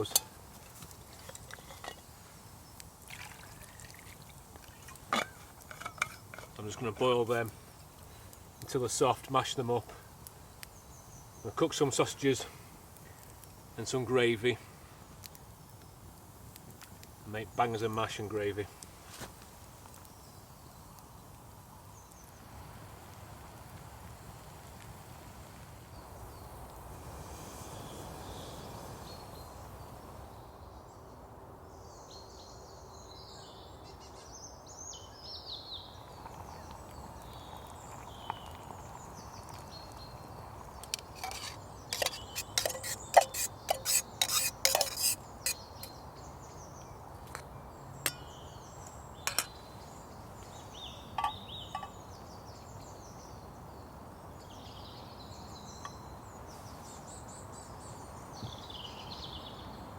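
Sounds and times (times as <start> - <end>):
steady hiss: 0.0 - 30.6, 36.0 - 53.2
birds chirping: 31.8 - 59.9
metal cookware clinking: 41.2 - 45.2.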